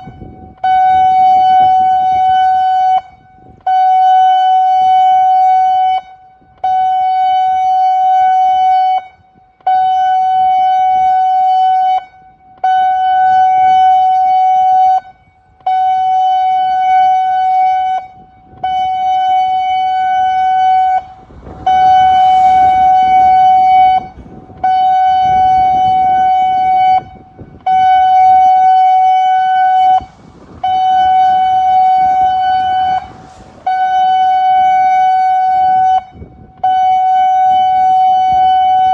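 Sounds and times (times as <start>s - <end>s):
pulsing flood warning siren: 0.0s - 38.9s
background rumble: 19.4s - 36.6s.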